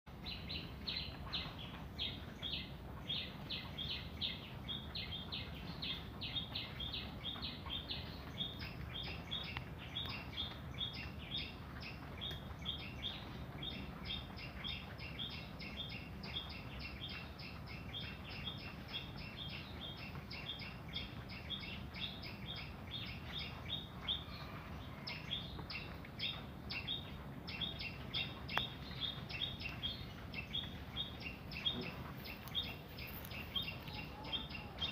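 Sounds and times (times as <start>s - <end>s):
low background noise: 0.1s - 34.9s
bird chirping rapidly: 25.1s - 34.9s.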